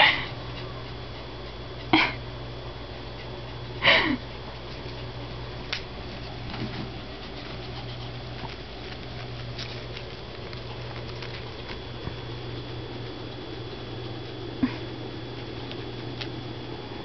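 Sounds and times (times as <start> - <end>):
low hum: 0.0 - 17.0
dog sniffing: 6.1 - 16.3.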